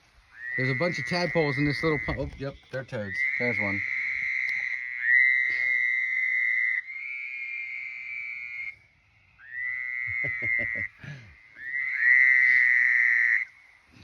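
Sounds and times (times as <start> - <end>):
low croaks: 0.0 - 14.0
toads trilling: 0.2 - 13.9.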